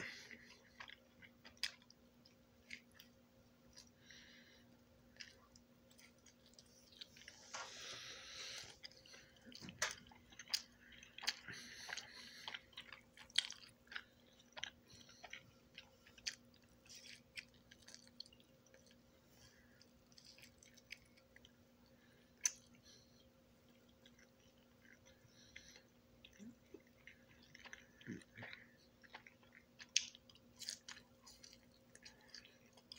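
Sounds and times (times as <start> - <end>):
person chewing: 0.0 - 32.9.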